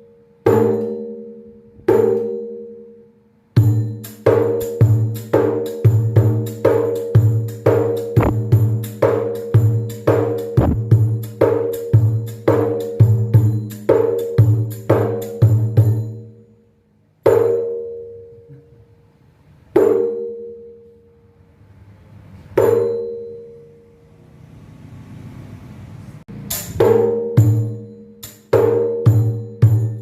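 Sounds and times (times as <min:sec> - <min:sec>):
frame drum struck by hand: 0:03.6 - 0:16.2, 0:26.3 - 0:30.0.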